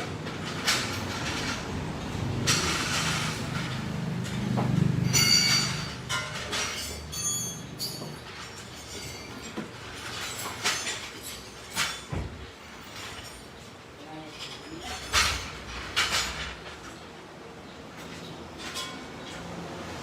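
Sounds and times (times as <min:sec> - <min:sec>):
metal tools clinking and scraping: 0:00.0 - 0:20.0
metallic ringing squeaks: 0:05.0 - 0:09.5.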